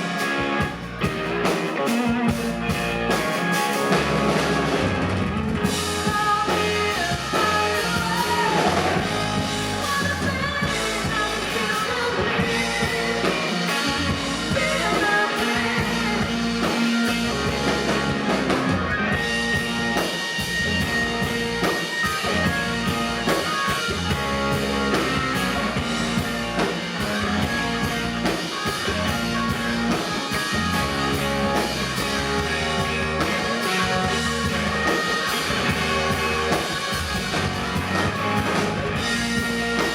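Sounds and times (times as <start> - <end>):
drum kit beat: 0.0 - 39.9
electric guitar: 0.0 - 39.9
person singing: 5.9 - 17.3.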